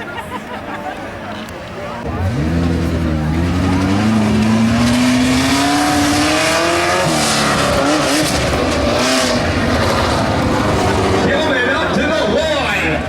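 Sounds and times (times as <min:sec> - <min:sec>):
truck engine revving: 0:02.0 - 0:13.0.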